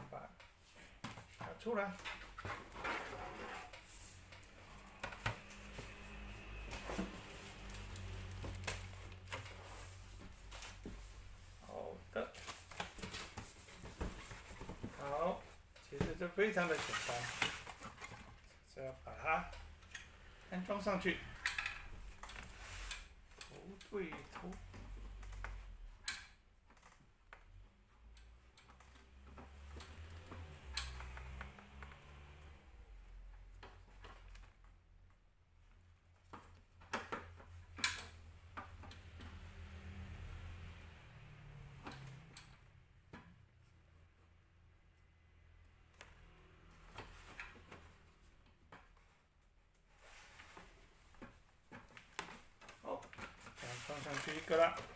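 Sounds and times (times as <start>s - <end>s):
packaging rustling: 53.6s - 54.9s.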